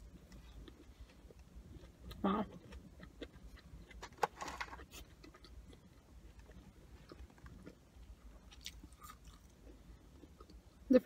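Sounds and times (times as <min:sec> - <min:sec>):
person chewing with mouth clicks: 0:00.0 - 0:04.0.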